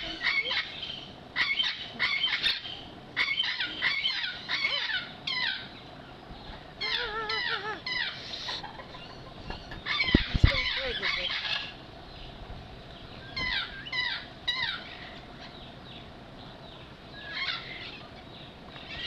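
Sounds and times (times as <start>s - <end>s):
low wavering bird call: 6.8s - 11.8s
squeaky bird calls: 6.8s - 11.8s.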